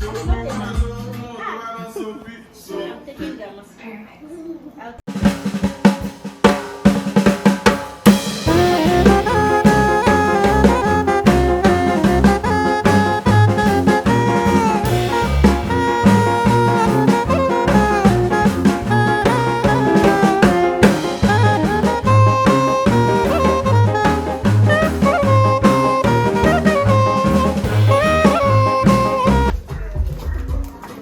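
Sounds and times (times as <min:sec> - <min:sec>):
drum kit hits: 0:05.1 - 0:29.6
band with bass line and melody: 0:08.1 - 0:29.5.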